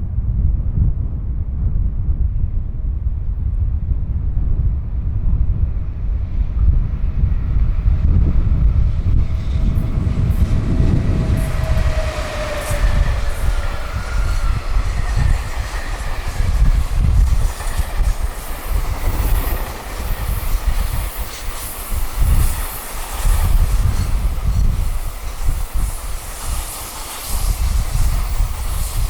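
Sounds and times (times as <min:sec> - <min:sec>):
freight train passing: 0:02.2 - 0:29.0
train wheel clatter on rails: 0:06.4 - 0:29.0.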